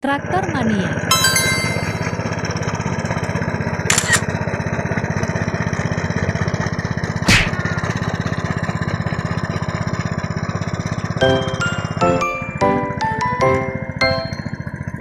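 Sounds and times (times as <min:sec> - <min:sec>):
tractor engine chugging: 0:00.0 - 0:15.0
short sharp clicks: 0:03.9 - 0:04.2
sharp knock: 0:07.3 - 0:07.6.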